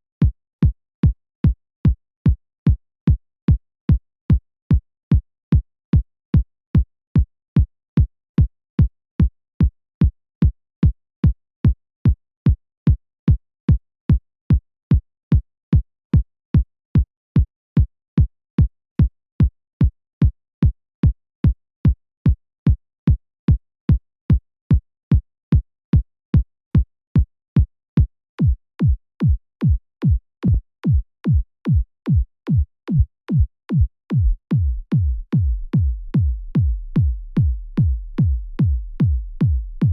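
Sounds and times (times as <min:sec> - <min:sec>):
electronic kick drum beat: 0:28.4 - 0:39.9.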